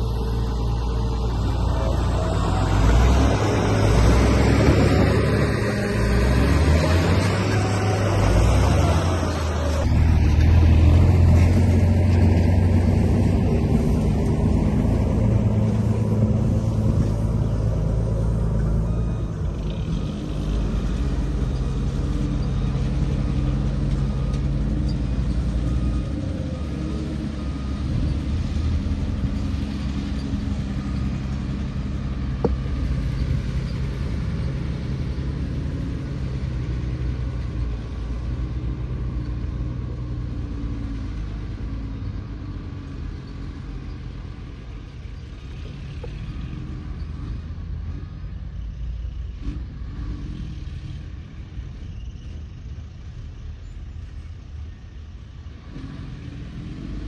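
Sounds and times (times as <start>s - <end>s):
model bulldozer rumbling: 0.0s - 57.0s.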